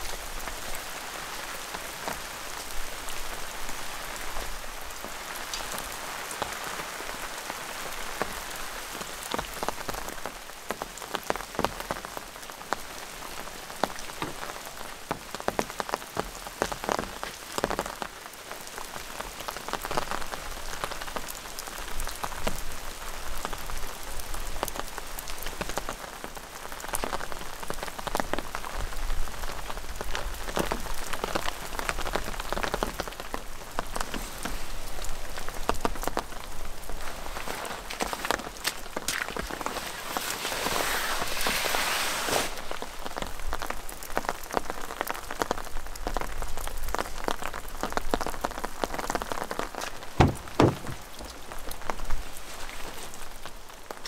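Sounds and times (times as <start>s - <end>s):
steady rain falling: 0.0s - 54.0s
drops tapping on plastic tarp: 35.4s - 40.7s, 48.9s - 52.0s.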